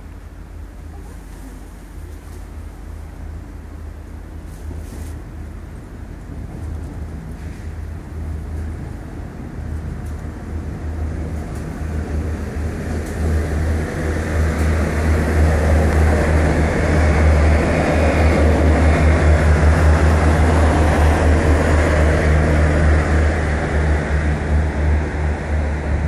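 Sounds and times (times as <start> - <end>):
low engine drone: 0.0 - 26.0
wheel-on-rail noise: 0.0 - 26.0.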